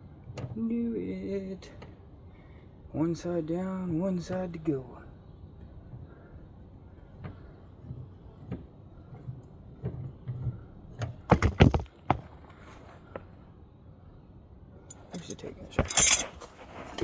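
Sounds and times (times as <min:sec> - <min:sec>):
metal hand tools knocking and clinking: 0:14.9 - 0:16.4.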